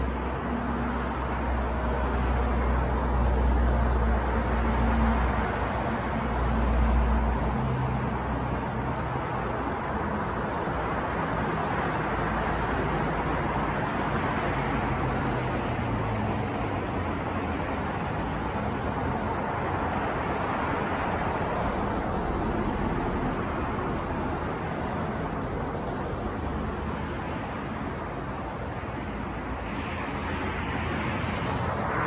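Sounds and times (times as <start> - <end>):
city traffic noise: 0.0 - 32.0.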